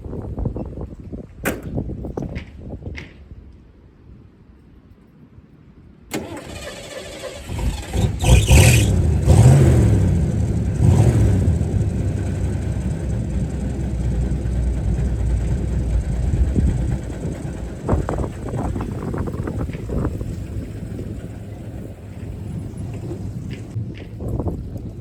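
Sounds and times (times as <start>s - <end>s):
car engine starting and revving: 6.1s - 23.8s.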